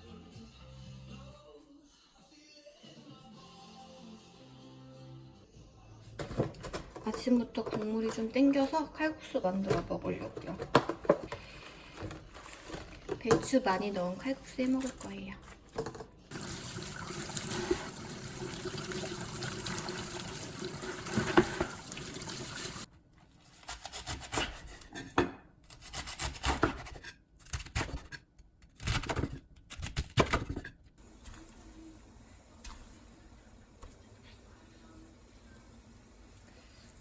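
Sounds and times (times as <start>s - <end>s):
tap water running into sink: 16.3s - 22.9s.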